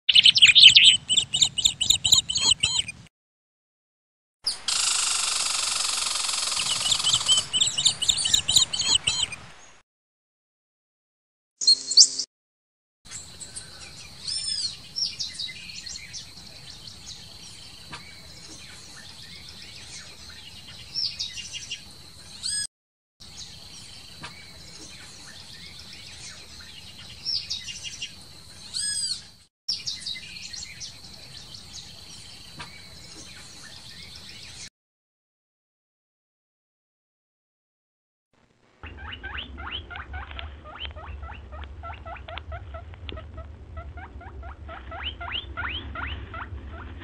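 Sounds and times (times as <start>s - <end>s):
small birds chirping: 0.1s - 3.0s, 4.5s - 9.8s, 11.6s - 12.3s, 13.1s - 34.7s, 38.8s - 47.0s.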